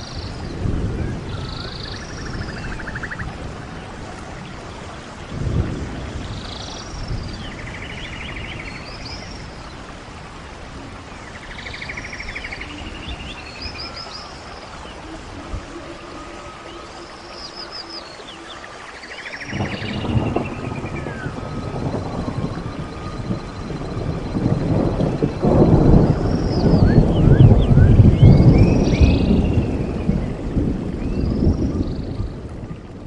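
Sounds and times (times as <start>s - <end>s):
birdsong chirps and trills: 0.0s - 33.0s
wind rushing: 19.4s - 33.0s.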